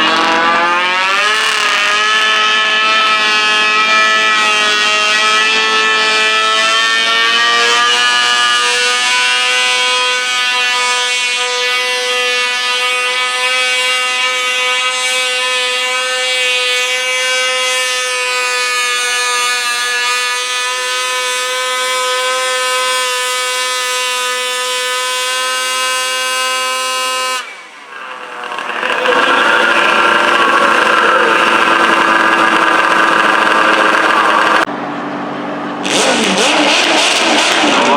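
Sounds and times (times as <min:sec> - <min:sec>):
tractor engine at full throttle: 0:00.0 - 0:11.8, 0:17.0 - 0:37.9.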